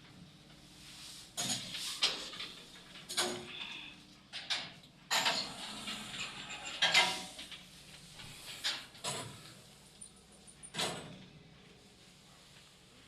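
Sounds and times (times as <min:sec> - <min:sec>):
lift doors clanking and rattling: 0:04.5 - 0:07.6.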